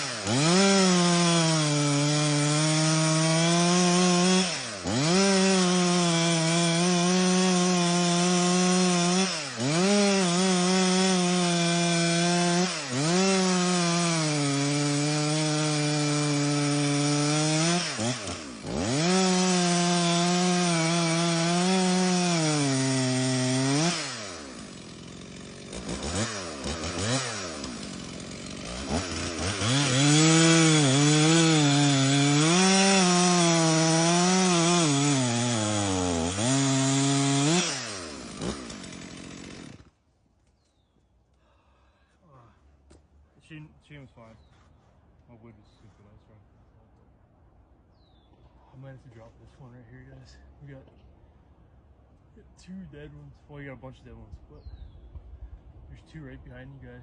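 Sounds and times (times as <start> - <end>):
chainsaw cutting wood: 0.0 - 40.1.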